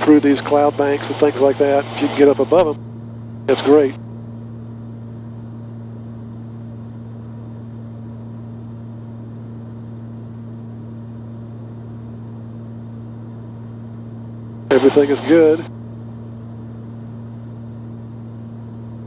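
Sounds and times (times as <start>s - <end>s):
aircraft piston engines droning: 0.0s - 2.8s, 3.5s - 4.0s, 14.7s - 15.7s.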